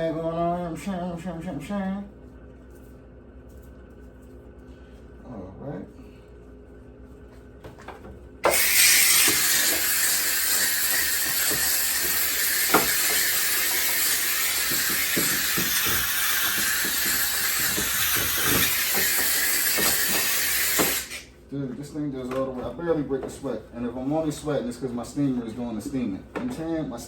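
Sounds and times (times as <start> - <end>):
steam cleaner hissing: 8.4 - 21.3.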